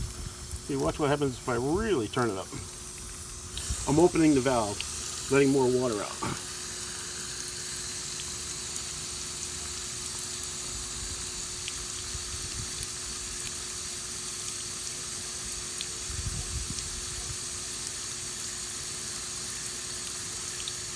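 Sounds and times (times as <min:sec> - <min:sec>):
water rushing from garden hose: 0:00.0 - 0:20.9.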